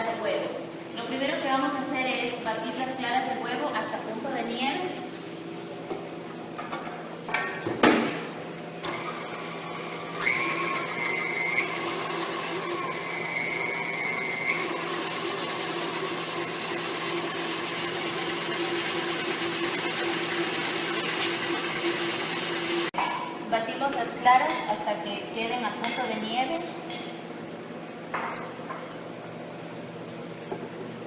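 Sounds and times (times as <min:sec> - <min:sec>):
electric mixer whining: 0:08.8 - 0:22.9.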